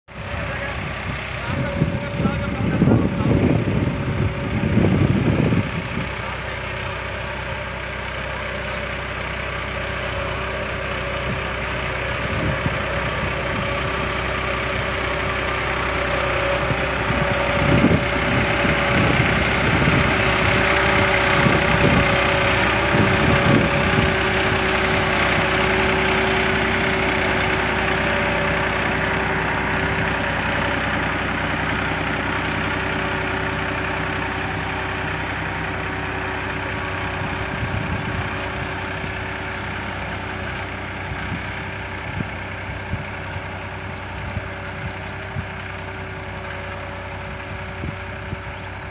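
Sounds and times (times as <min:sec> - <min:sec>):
tractor engine running: 0:00.1 - 0:48.9.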